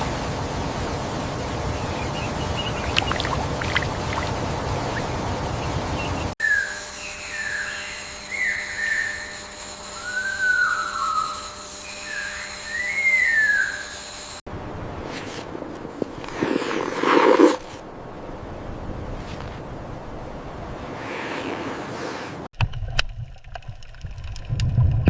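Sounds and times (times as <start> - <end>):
rushing water: 0.0 - 6.4
bird singing slurred whistles: 1.8 - 3.3, 12.0 - 13.8
faint bird chirps: 1.8 - 3.8.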